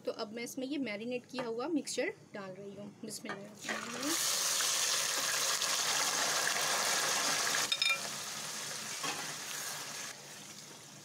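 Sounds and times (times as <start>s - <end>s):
chicken sizzling in hot oil: 3.8s - 11.0s.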